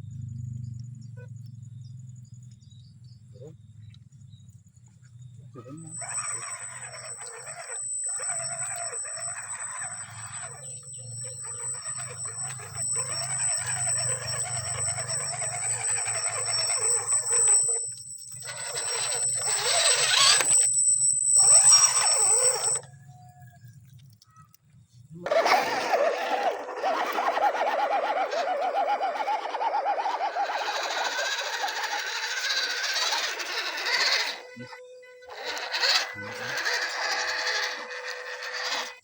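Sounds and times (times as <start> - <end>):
grinding gears and tyres: 0.0 - 23.2, 25.1 - 34.6, 35.2 - 39.0
electric motor whine: 5.6 - 22.9, 25.2 - 39.0.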